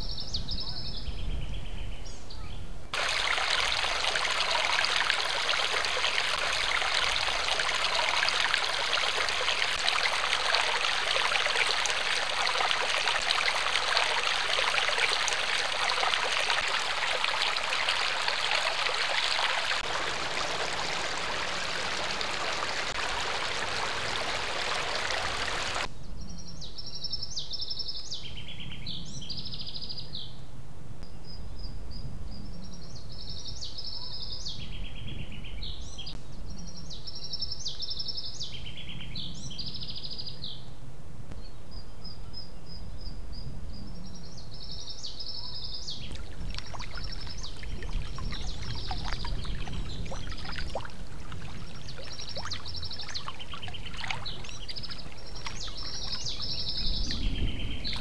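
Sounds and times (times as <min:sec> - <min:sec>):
songbird warbling: 0:02.4 - 0:25.9, 0:45.4 - 0:58.0.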